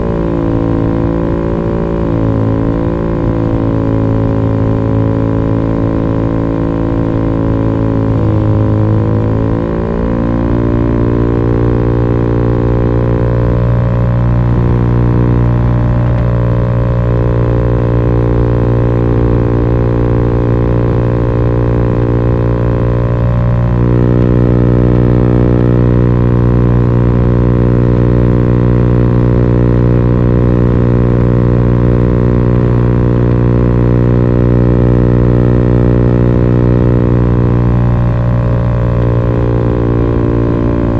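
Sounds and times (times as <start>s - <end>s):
scooter engine droning exhaust: 0.0s - 40.9s.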